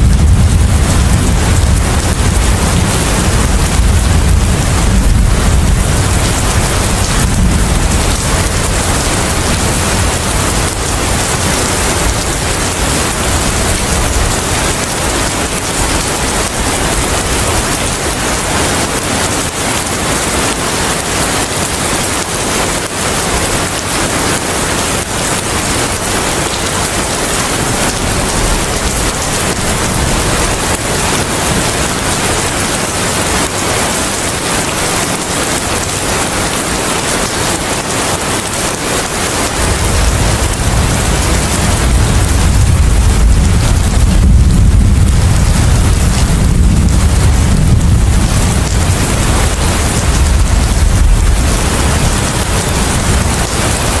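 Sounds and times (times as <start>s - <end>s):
low rumble: 0.0s - 14.3s, 39.7s - 53.8s
steady rain: 0.0s - 54.0s
wind: 0.0s - 54.0s.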